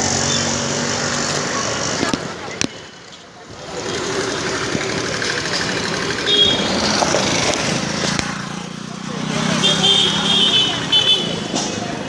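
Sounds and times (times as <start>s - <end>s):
vehicle engine running: 3.5s - 10.5s.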